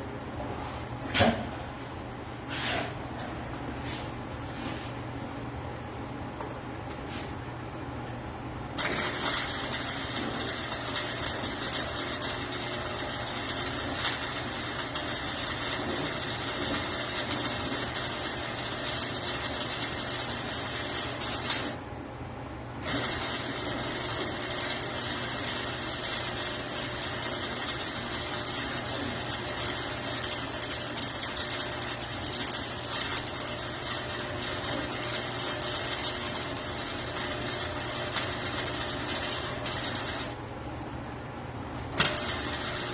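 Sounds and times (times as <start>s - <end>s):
welding arc crackling: 8.8s - 21.8s, 22.8s - 40.5s, 41.9s - 42.9s.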